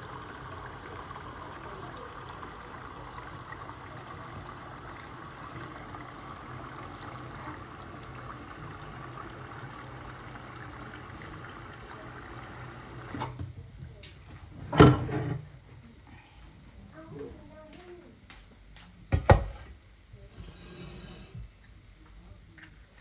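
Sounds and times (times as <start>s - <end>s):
water pouring into a pot: 0.0s - 13.4s.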